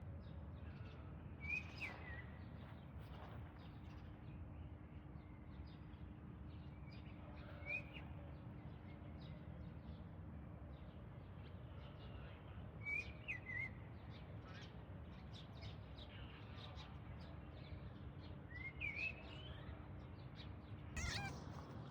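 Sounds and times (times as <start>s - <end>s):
bird chirping: 21.0s - 21.4s.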